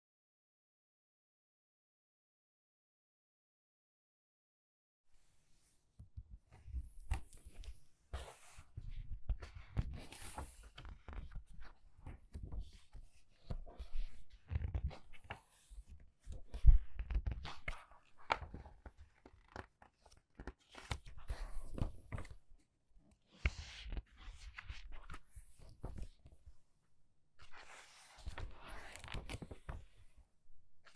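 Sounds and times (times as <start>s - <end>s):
book pages turning: 9.5s - 11.4s, 16.5s - 22.4s, 27.4s - 30.1s.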